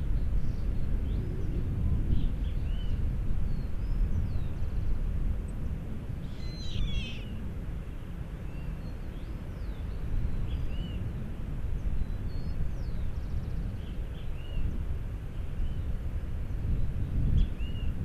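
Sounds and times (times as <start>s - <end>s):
wind on microphone: 0.0s - 18.0s
small birds chirping: 6.2s - 7.4s.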